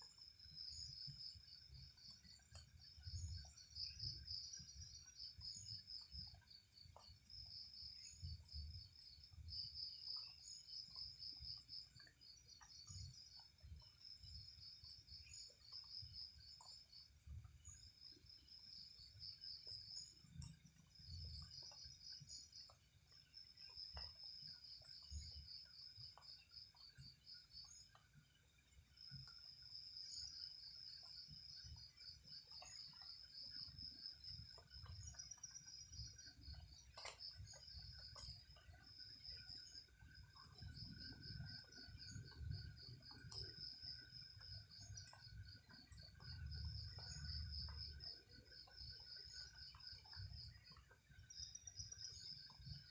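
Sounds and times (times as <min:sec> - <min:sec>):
insects chirping: 0:00.0 - 0:52.9
faint clicks: 0:01.1 - 0:04.2, 0:19.6 - 0:28.2, 0:30.9 - 0:51.0.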